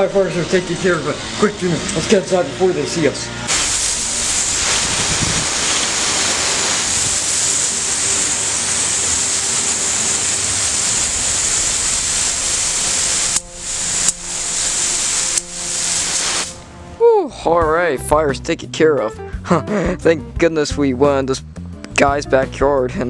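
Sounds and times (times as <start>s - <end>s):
water hose spraying: 3.5s - 17.0s.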